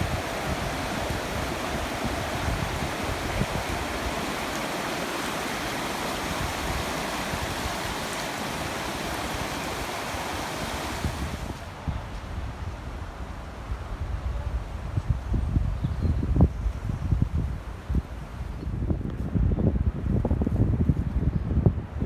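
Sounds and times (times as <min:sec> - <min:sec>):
floodwater rushing: 0:00.0 - 0:11.8
wind buffeting microphone: 0:00.0 - 0:22.0.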